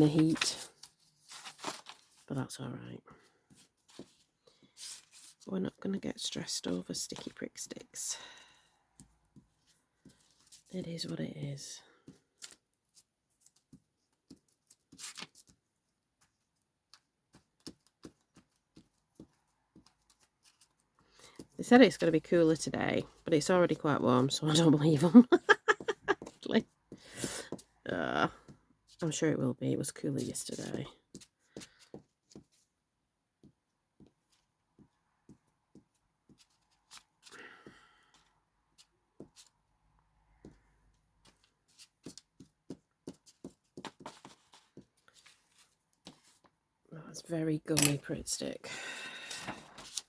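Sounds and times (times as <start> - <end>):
paper rustling: 0.0 - 2.3, 49.5 - 50.0.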